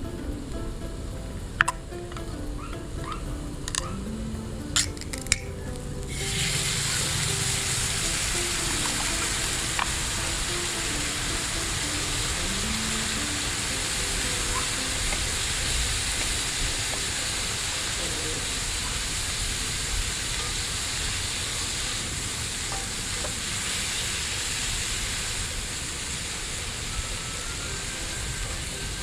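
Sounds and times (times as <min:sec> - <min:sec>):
food sizzling in a hot pan: 0:06.0 - 0:29.0.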